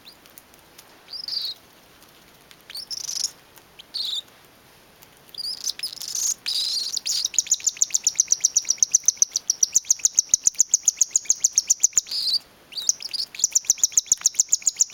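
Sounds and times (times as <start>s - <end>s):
baby cockatiel begging chirps: 1.1s - 1.6s, 3.9s - 4.2s, 5.4s - 14.9s.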